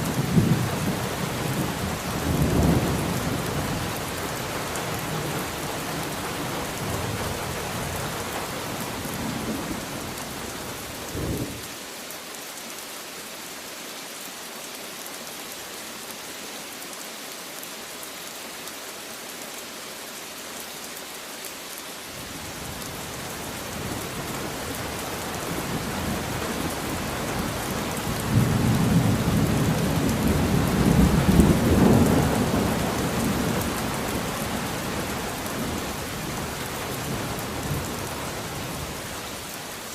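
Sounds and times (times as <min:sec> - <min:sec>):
heavy rain: 0:00.0 - 0:39.9
rolling thunder: 0:11.0 - 0:11.6.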